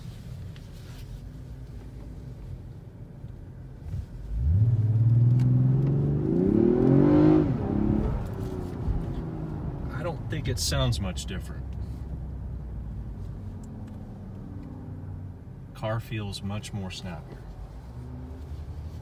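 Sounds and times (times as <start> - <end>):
car engine accelerating: 3.8 - 15.4.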